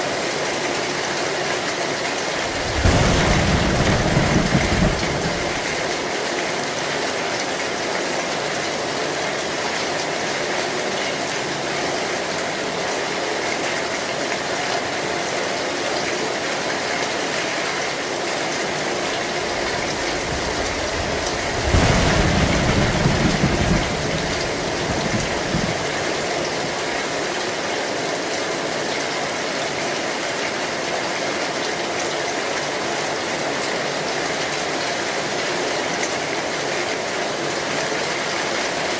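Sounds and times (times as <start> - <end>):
heavy rain on metal roof: 0.0 - 38.9
low rumble of thunder: 2.3 - 6.1, 19.1 - 27.0.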